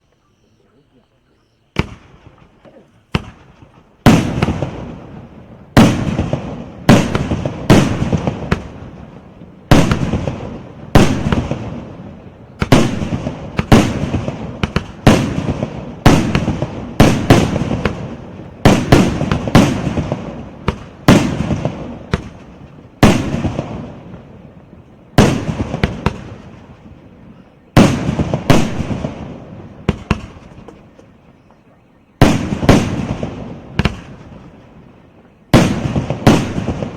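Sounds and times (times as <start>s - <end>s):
crackling pops: 1.7s - 5.0s, 12.6s - 24.2s, 27.7s - 31.6s, 32.2s - 36.9s
fireworks bangs: 1.7s - 31.3s, 32.1s - 36.9s.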